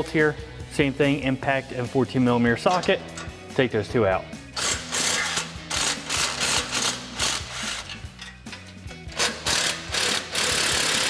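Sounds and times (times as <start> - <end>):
impact wrench bursts: 4.6 - 8.3, 9.1 - 11.0.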